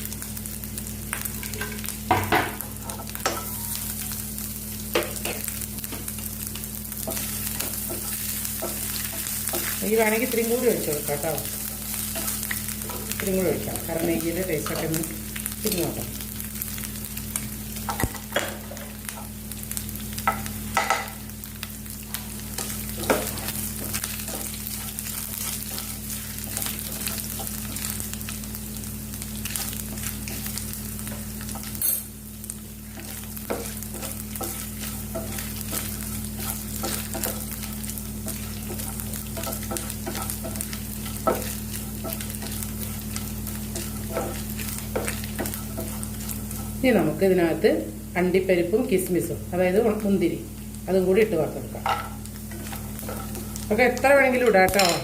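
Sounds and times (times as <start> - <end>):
coconut frying in ghee: 0.0 - 55.0
spatula scraping pan: 51.8 - 55.0.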